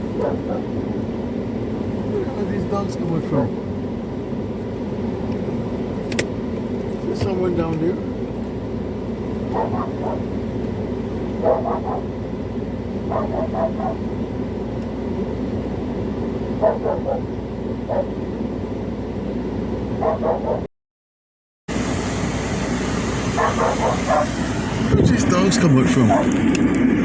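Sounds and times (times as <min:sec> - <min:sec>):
dogs barking: 0:00.0 - 0:00.7, 0:09.4 - 0:10.4, 0:11.3 - 0:12.2, 0:13.0 - 0:14.1, 0:16.6 - 0:18.2, 0:19.9 - 0:20.7, 0:23.4 - 0:24.4, 0:26.0 - 0:26.4
steady low rumble: 0:00.0 - 0:20.7, 0:21.7 - 0:27.0.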